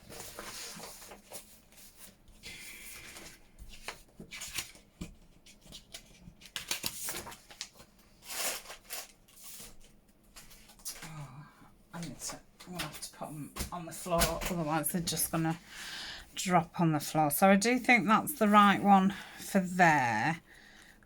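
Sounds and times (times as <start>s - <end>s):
paper rustling and sliding: 0.0s - 10.9s.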